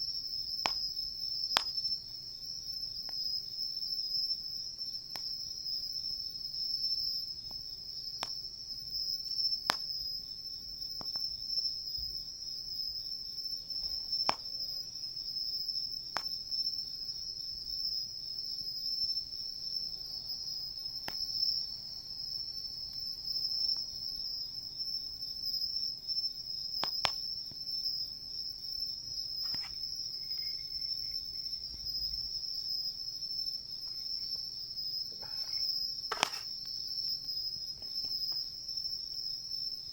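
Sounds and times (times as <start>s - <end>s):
insects trilling: 0.0s - 39.9s
campfire crackling and popping: 0.5s - 1.9s, 9.6s - 10.0s, 14.1s - 14.9s, 16.1s - 16.4s, 26.8s - 27.6s, 29.2s - 30.0s, 36.1s - 36.8s.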